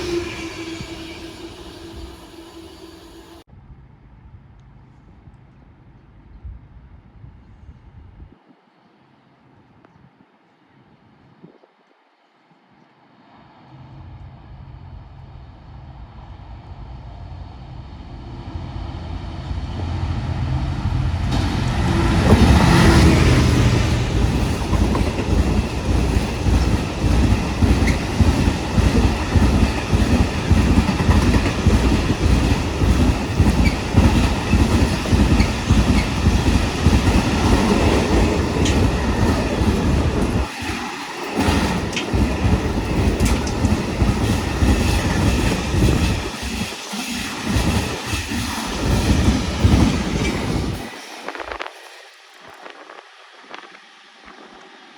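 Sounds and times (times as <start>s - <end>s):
diesel locomotive engine passing: 0.0s - 3.5s, 13.7s - 54.9s
wheels clattering over rail joints: 21.3s - 52.5s.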